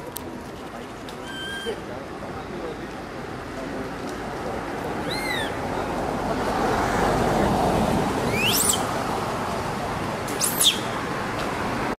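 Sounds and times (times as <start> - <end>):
high-pitched bird calls: 1.2 - 1.8, 5.0 - 5.6, 8.3 - 8.9, 10.3 - 11.0.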